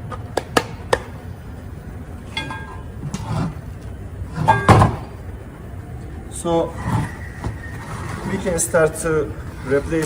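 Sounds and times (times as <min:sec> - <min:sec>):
metallic ring: 0:02.3 - 0:03.2.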